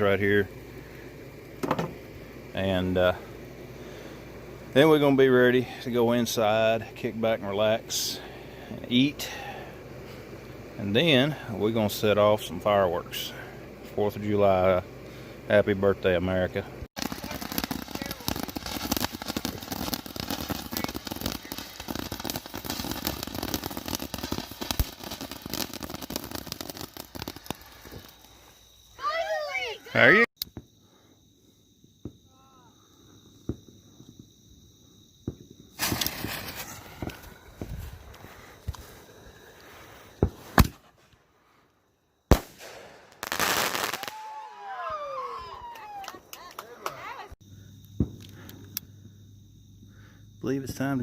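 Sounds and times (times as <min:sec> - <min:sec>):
fireworks hissing: 0:00.0 - 0:46.0
dense crackling and popping: 0:15.6 - 0:29.6
fireworks bangs: 0:17.0 - 0:30.8, 0:35.2 - 0:41.2, 0:42.3 - 0:47.3, 0:47.9 - 0:48.5
fireworks whistles falling in pitch: 0:17.0 - 0:31.1, 0:35.1 - 0:41.1, 0:42.3 - 0:46.4.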